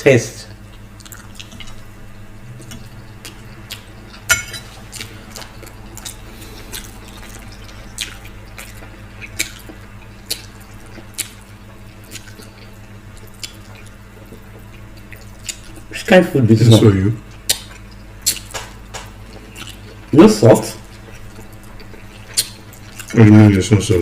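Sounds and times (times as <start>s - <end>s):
chewing with wet mouth smacks: 0.6s - 16.0s, 17.2s - 23.5s.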